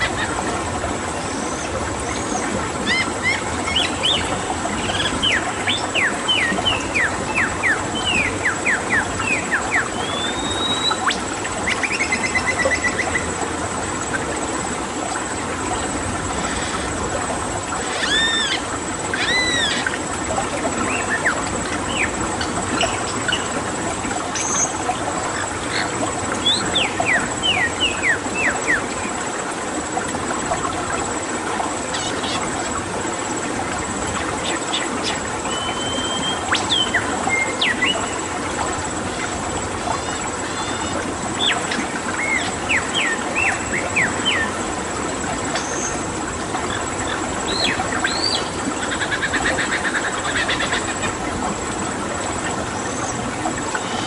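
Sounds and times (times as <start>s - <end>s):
wild birds calling: 0.0s - 13.4s, 16.3s - 29.0s, 34.2s - 44.6s, 45.4s - 51.7s
running water: 0.0s - 54.0s.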